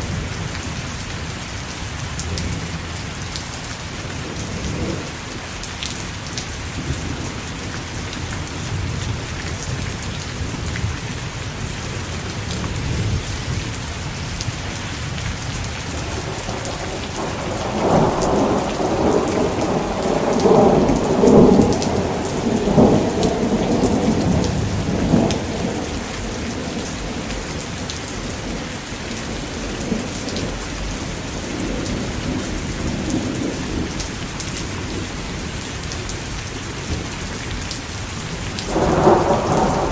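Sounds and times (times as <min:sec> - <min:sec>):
steady rain: 0:00.0 - 0:39.9
thunder rolling: 0:15.9 - 0:34.0, 0:38.6 - 0:39.9.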